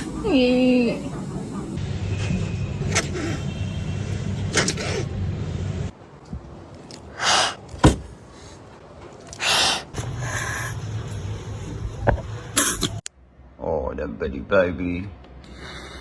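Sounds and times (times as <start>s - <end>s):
kitten hissing: 7.2s - 8.0s, 9.4s - 10.0s.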